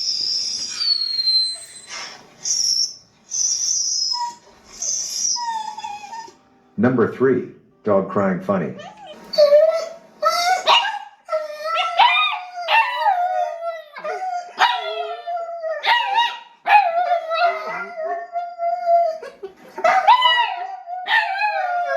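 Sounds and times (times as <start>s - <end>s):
dog howling: 8.8s - 19.3s, 19.9s - 21.9s.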